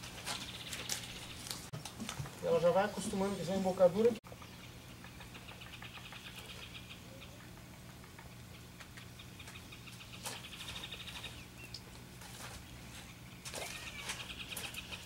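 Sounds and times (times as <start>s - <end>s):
small bird trilling: 13.6s - 15.0s.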